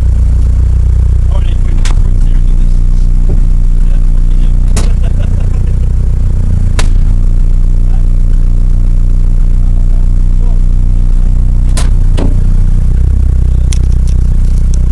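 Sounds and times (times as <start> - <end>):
car engine idling: 0.0 - 14.9
sharp click: 11.7 - 12.3.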